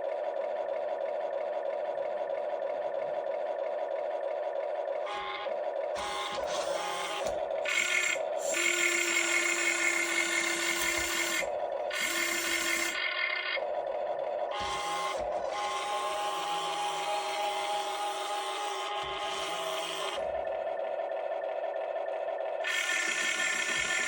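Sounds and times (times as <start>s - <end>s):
small electric motors whining: 5.0s - 13.7s, 14.4s - 20.7s, 22.6s - 24.0s.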